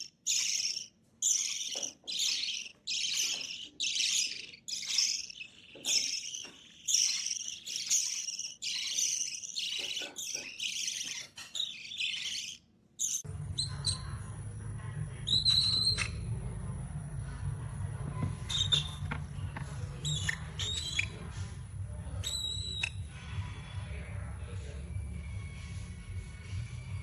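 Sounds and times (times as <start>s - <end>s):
bird chirping short high calls: 0.0s - 13.2s
steady low hum: 13.2s - 22.2s.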